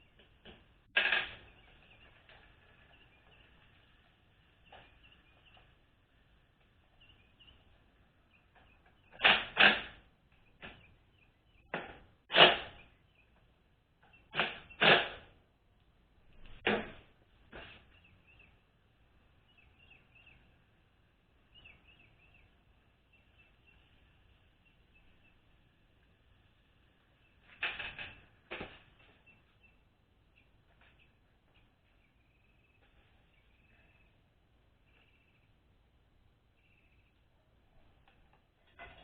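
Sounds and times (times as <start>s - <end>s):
faint high chirps: 29.0s - 39.0s.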